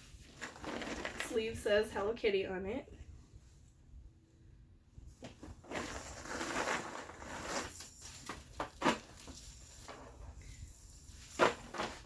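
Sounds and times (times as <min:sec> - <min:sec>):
sharp rustles or knocks: 0:05.2 - 0:12.0.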